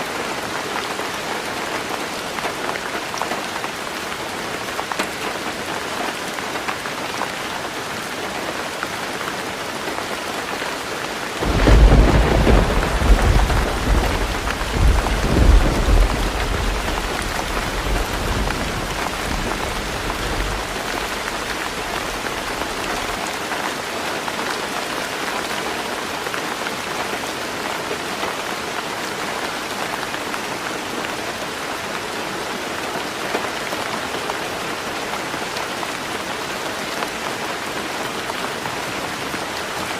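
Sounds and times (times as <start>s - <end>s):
heavy rain on a tin roof: 0.0s - 39.9s
thunder clap rumbling: 11.4s - 23.2s.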